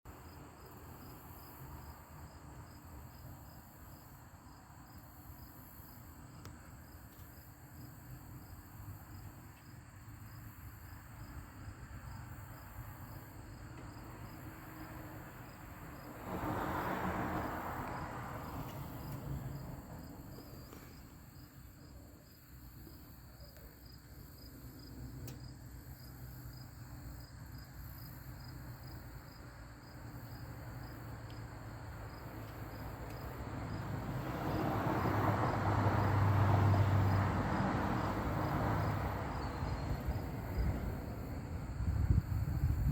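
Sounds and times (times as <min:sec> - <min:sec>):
insects chirring: 0:00.1 - 0:42.9
low wind rumble on microphone: 0:39.2 - 0:42.9.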